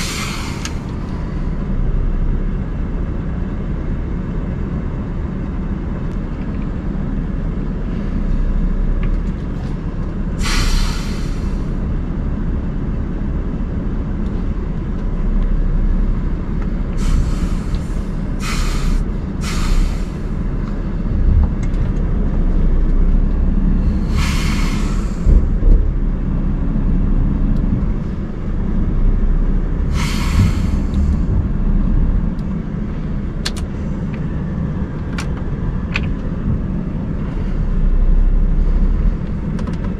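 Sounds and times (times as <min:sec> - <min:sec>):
compressed air hisses: 0:00.0 - 0:00.8, 0:10.4 - 0:11.7, 0:17.0 - 0:20.3, 0:23.9 - 0:25.3, 0:29.9 - 0:31.0
diesel truck engine idling: 0:00.0 - 0:39.9.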